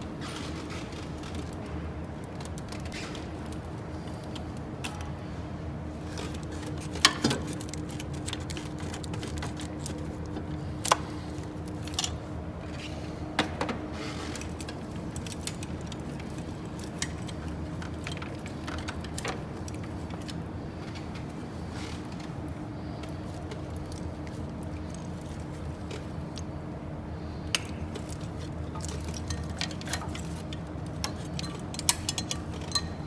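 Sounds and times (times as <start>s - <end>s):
steady low hum: 0.0s - 33.0s
metal tools clinking on engine parts: 27.6s - 33.0s.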